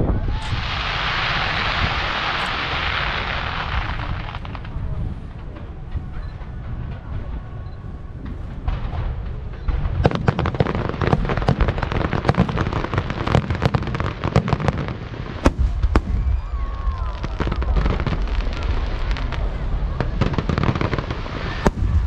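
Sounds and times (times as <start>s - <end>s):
low rumble: 0.0s - 10.3s
fireworks cracks and bangs: 0.0s - 22.0s.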